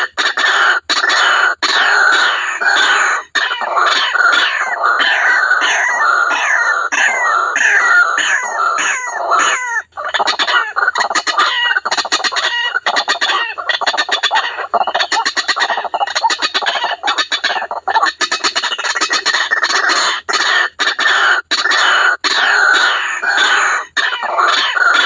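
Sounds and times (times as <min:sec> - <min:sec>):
waterhen calls: 0:00.0 - 0:25.0.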